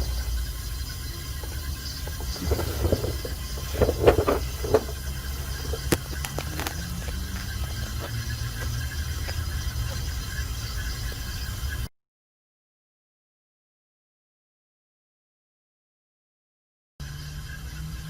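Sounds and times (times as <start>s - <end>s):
low mechanical hum: 0.0s - 11.9s, 17.0s - 18.0s
knocks and clatter: 1.4s - 10.4s.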